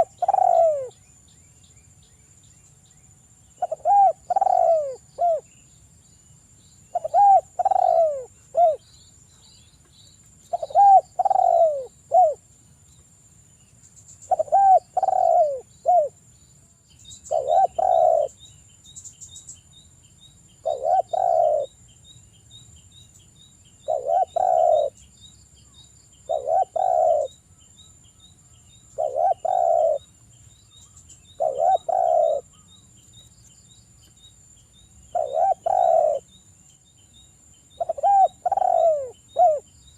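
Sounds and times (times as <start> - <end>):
dove cooing: 0.0 - 1.0, 3.6 - 5.5, 6.9 - 8.8, 10.5 - 12.4, 14.3 - 16.2, 17.3 - 18.4, 20.6 - 21.7, 23.8 - 25.0, 26.3 - 27.4, 29.0 - 30.1, 31.4 - 32.7, 35.1 - 36.3, 37.8 - 39.7.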